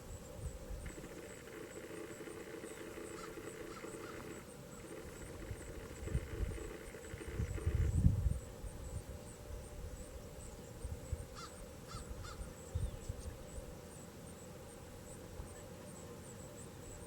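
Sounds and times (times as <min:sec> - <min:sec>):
short bird calls: 0:00.9 - 0:04.4, 0:11.3 - 0:13.2.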